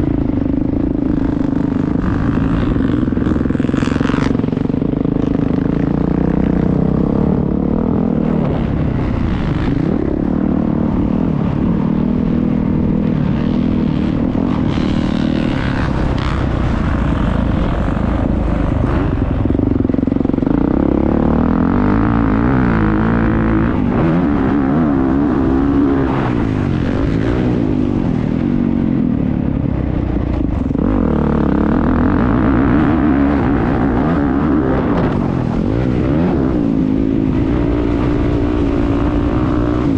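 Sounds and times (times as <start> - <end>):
motocross bike engine revving: 0.0 - 29.2, 30.3 - 39.9.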